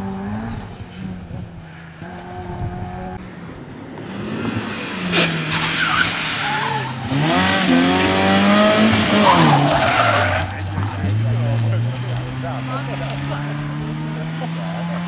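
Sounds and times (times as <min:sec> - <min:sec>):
rally car engine revving: 0:00.0 - 0:03.3, 0:03.9 - 0:15.0
tyres hissing on road: 0:04.2 - 0:14.5.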